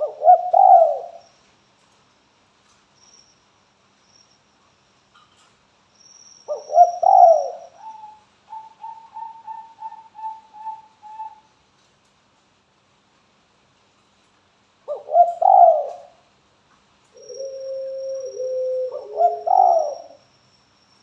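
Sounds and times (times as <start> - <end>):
dove cooing: 0.0 - 1.3, 6.5 - 11.5, 14.9 - 16.2, 17.2 - 20.2.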